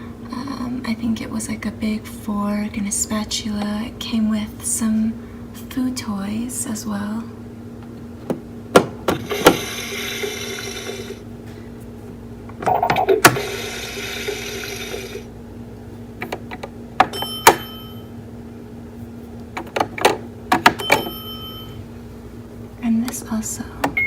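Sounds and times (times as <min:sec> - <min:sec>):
steady low hum: 0:00.0 - 0:24.0
bright bell-like ding: 0:17.2 - 0:18.0, 0:20.9 - 0:21.8.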